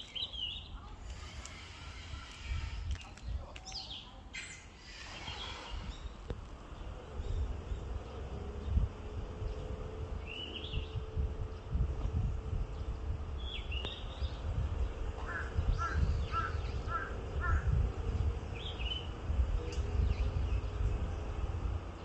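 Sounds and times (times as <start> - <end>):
buzzing drone: 6.6 - 21.8
flycatcher calls: 13.4 - 19.2.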